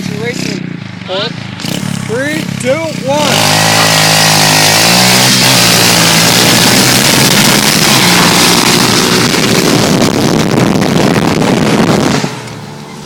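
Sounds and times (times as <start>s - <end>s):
engine accelerating at full throttle: 0.0s - 13.0s
wind buffeting microphone: 6.3s - 12.8s.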